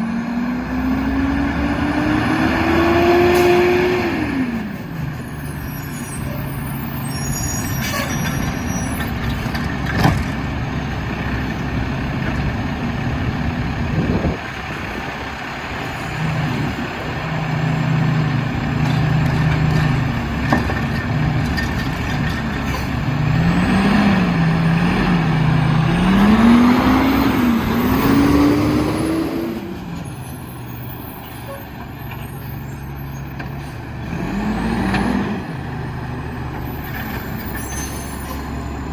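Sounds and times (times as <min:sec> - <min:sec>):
garbage truck diesel engine: 0:00.0 - 0:38.9
truck air brakes: 0:03.2 - 0:09.6, 0:22.5 - 0:23.2, 0:26.2 - 0:34.0, 0:36.4 - 0:38.9.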